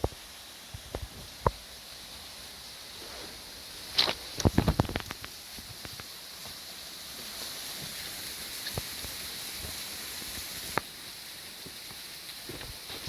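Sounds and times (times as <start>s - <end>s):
jungle ambience hiss: 0.0s - 13.0s.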